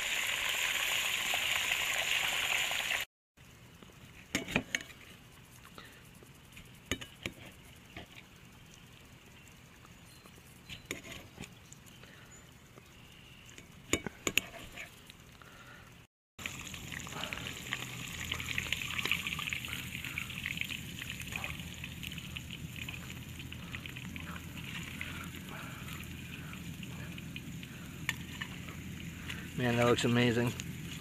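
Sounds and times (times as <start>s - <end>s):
fish frying in hot oil: 0.0s - 10.1s, 16.4s - 31.0s.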